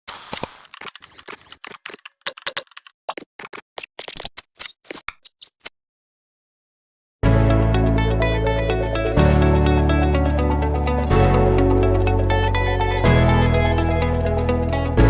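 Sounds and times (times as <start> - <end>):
sharp clicks and taps: 0.1 - 5.7.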